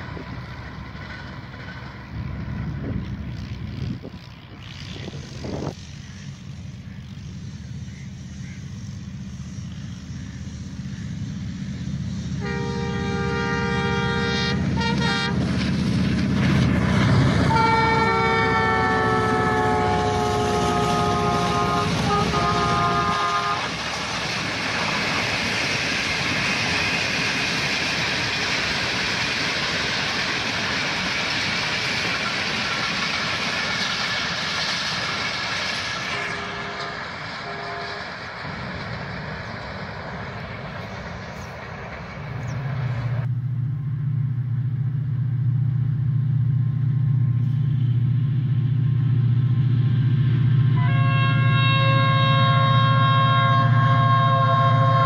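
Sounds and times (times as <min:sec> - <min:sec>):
locomotive engine rumble: 0:00.0 - 0:55.0
train coaches rolling on rails: 0:00.0 - 0:55.0
train horn blasts: 0:12.4 - 0:15.6, 0:17.2 - 0:23.8, 0:36.1 - 0:38.2, 0:50.7 - 0:55.0.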